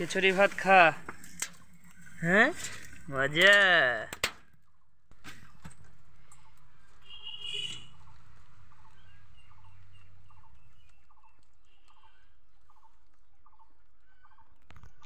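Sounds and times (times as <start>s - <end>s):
bird calling: 5.4s - 15.0s.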